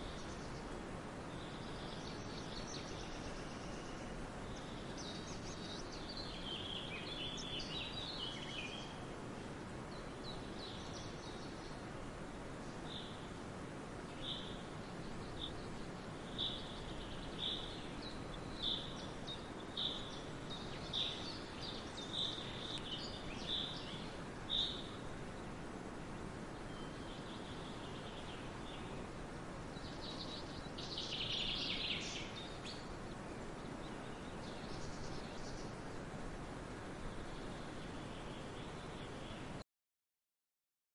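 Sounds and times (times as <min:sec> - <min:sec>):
outdoor ambient hiss: 0:00.0 - 0:39.6
bird chirping: 0:01.3 - 0:09.0, 0:14.1 - 0:25.0, 0:26.6 - 0:29.0, 0:29.7 - 0:35.9.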